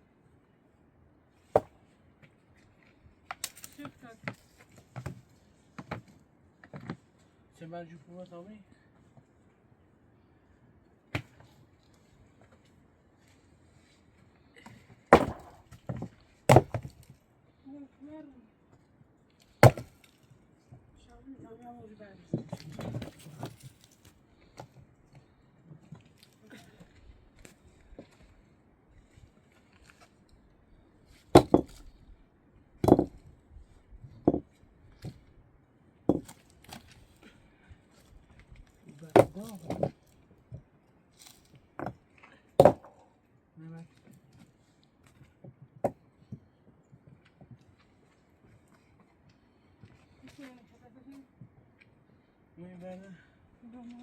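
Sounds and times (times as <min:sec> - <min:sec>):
heavy chopping blows: 0:15.1 - 0:15.8, 0:19.6 - 0:20.0.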